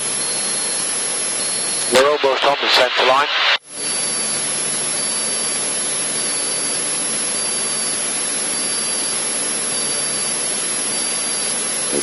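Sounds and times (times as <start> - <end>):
propeller plane engine droning: 0.0 - 2.1, 3.0 - 12.0
faint pulsing high tone: 3.8 - 12.0.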